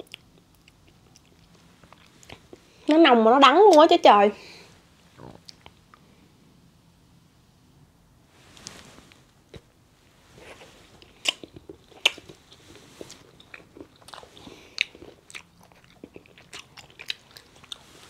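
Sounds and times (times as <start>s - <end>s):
chewing chocolate: 0.0s - 2.7s, 5.2s - 6.0s, 11.0s - 18.0s.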